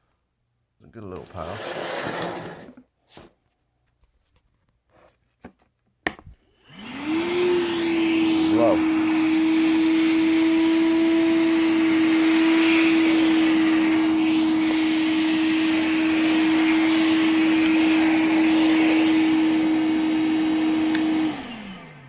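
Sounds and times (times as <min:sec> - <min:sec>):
vacuum motor hum: 0:06.6 - 0:22.0
air rushing through hose: 0:06.9 - 0:21.5.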